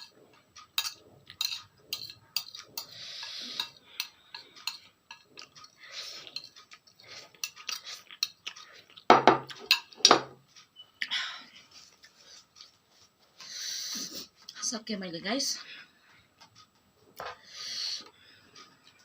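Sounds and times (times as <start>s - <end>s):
utensils clinking on bowl: 0.0s - 8.6s, 9.2s - 10.3s.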